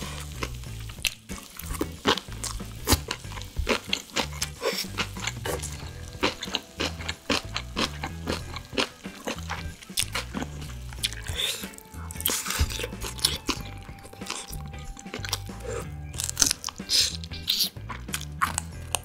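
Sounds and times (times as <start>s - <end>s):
biting meat off a bone: 0.0s - 19.0s
close chewing with mouth clicks: 0.0s - 19.0s.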